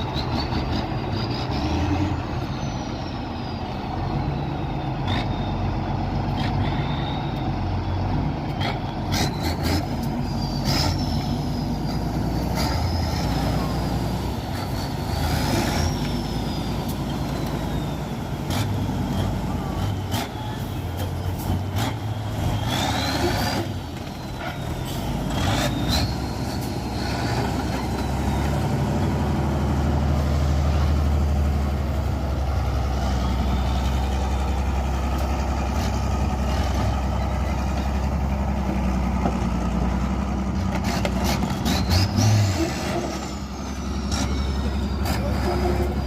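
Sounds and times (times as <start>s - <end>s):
truck diesel engine revving: 0.0s - 46.0s.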